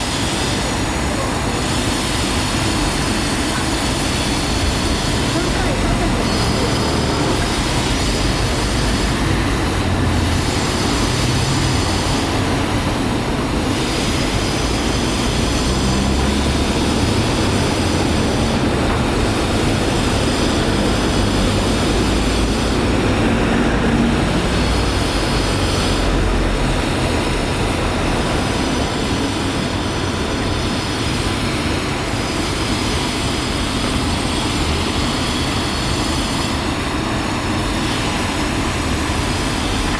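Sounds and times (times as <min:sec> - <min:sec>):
passing trains: 0:00.0 - 0:39.9
traffic rumble: 0:03.0 - 0:30.8.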